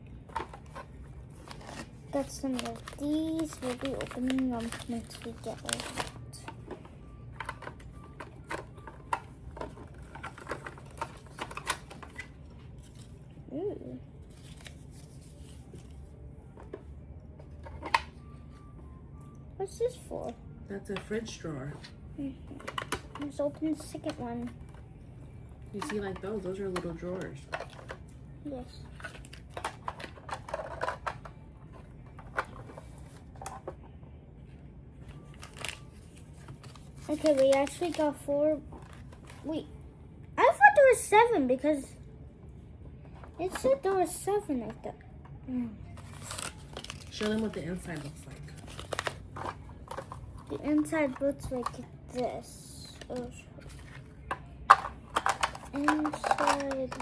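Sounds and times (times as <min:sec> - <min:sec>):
plastic toy pieces clicking: 0:54.7 - 0:57.0.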